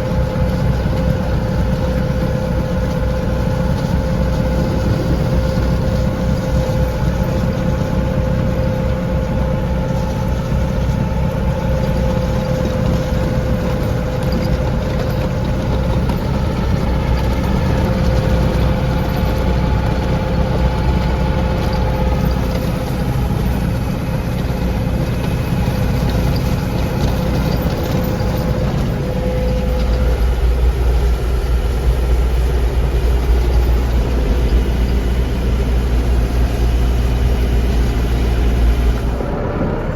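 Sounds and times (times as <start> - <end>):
tractor engine running: 0.0 - 39.9
high steady whine: 18.8 - 39.5.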